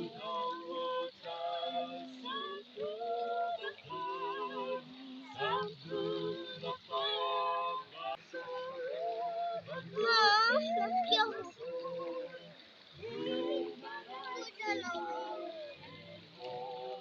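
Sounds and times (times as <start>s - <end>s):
woman singing worship song: 0.0s - 17.0s.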